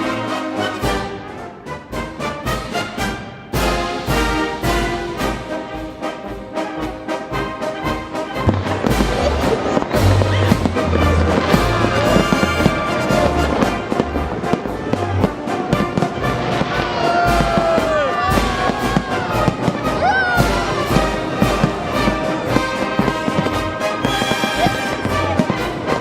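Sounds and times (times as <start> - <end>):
orchestral music with brass: 0.0 - 26.0
firework shells bursting: 8.4 - 26.0.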